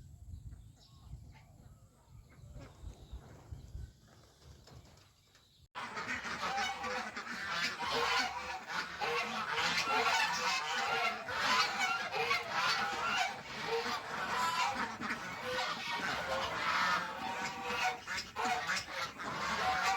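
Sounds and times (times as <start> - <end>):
geese honking: 5.8 - 19.9.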